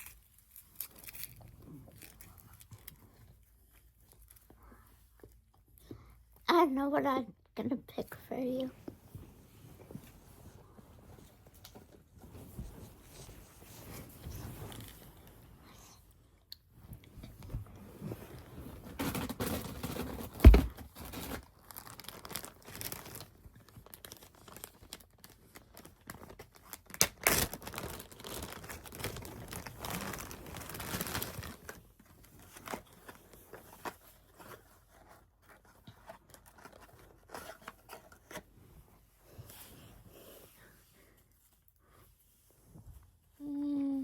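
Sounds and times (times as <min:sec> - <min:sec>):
plastic packaging crinkling and tearing: 0:00.0 - 0:04.4, 0:18.8 - 0:38.4.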